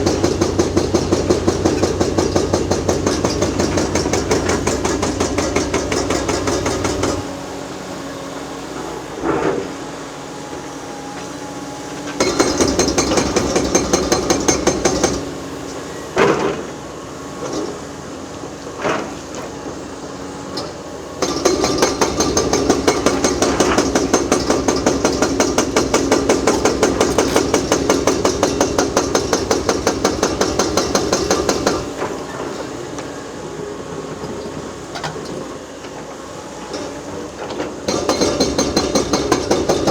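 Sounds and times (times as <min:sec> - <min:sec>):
hydraulic breaker hammering concrete: 0:00.0 - 0:07.4, 0:11.2 - 0:16.8, 0:20.5 - 0:32.9, 0:36.7 - 0:39.9.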